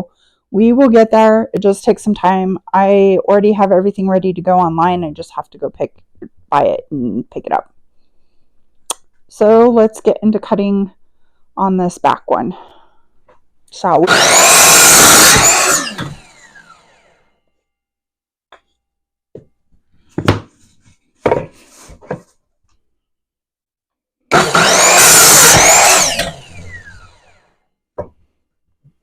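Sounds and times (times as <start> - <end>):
power saw cutting: 14.0 - 17.2, 24.3 - 27.5
knocks: 20.2 - 20.5, 21.2 - 22.3.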